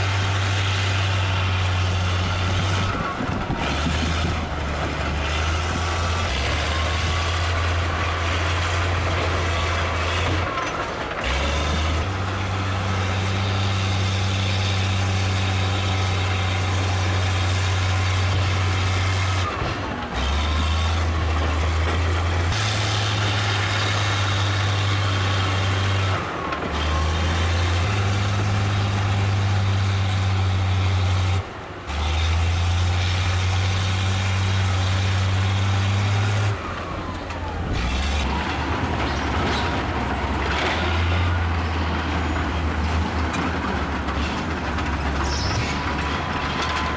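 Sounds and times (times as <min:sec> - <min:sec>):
bulldozer diesel engine running: 0:00.0 - 0:46.9.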